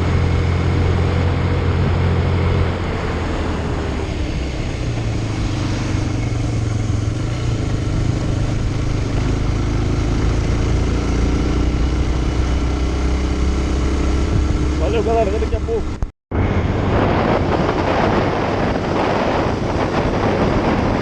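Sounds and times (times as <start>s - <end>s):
motorcycle engine cruising: 0.0s - 21.0s
rushing noise: 14.1s - 21.0s.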